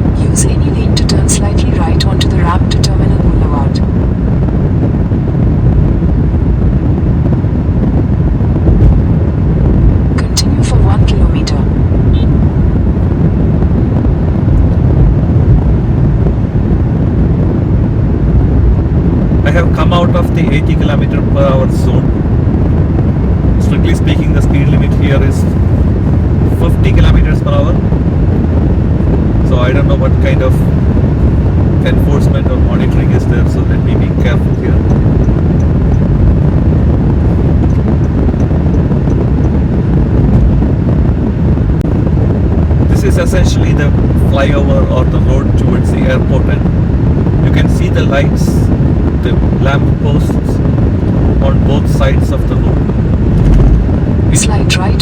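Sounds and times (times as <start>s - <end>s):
car road and wind noise: 0.0s - 55.0s.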